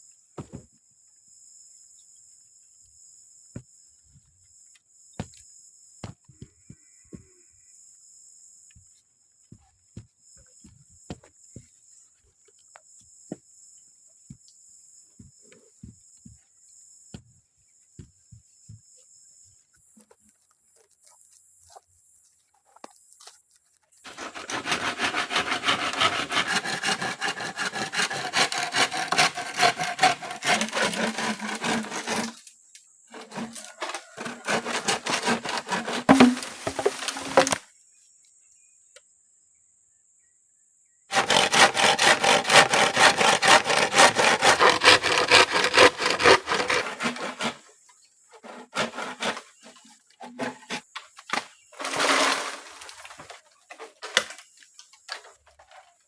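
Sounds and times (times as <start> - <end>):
hand saw cutting wood: 24.0 - 32.5, 33.1 - 37.6, 41.1 - 47.7, 48.4 - 50.9, 51.8 - 53.4.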